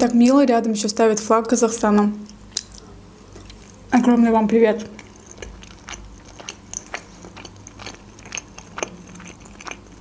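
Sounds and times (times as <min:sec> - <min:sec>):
chewing with mouth clicks: 0:02.6 - 0:03.9, 0:04.8 - 0:10.0.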